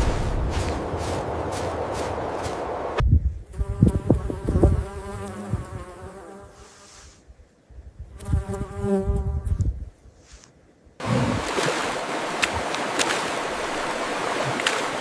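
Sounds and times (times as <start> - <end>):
rushing noise: 0.0 - 3.0
low thuds: 0.0 - 4.7
flying insect buzzing: 3.5 - 7.2, 8.2 - 9.7.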